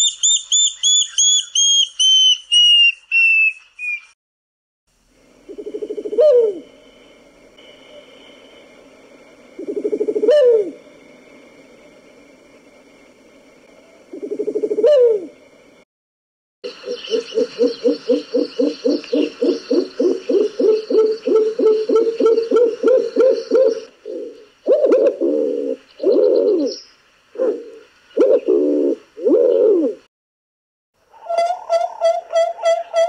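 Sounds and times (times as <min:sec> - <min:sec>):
bird low hooting: 0:05.2 - 0:12.1, 0:13.7 - 0:15.5, 0:16.6 - 0:30.1.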